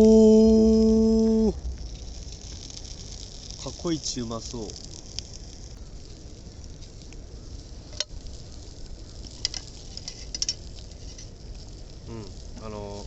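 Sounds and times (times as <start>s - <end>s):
food sizzling over campfire: 0.0s - 13.0s
low steady rumble: 0.0s - 13.0s.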